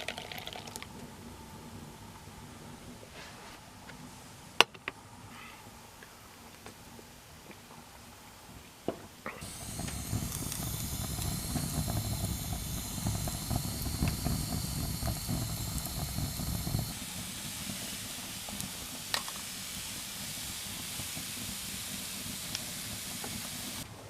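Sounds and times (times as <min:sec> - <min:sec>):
steady hiss: 0:00.0 - 0:24.0
low rumble: 0:09.4 - 0:17.1.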